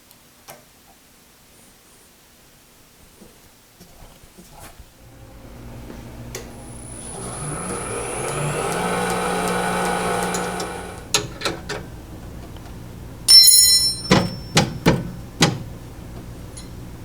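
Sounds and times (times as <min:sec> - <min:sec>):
lathe motor spinning: 0:05.0 - 0:11.6.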